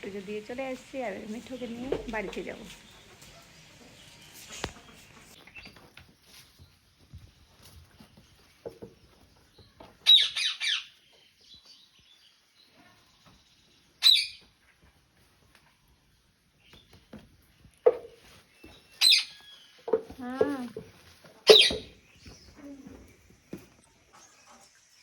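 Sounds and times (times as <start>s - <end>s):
parrot squawking: 21.5s - 21.9s.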